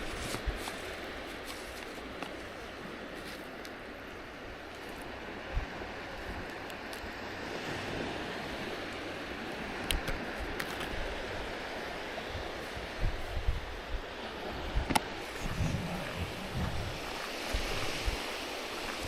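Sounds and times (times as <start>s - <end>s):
waves breaking on a beach: 0.0s - 19.0s
wind buffeting microphone: 9.8s - 19.0s.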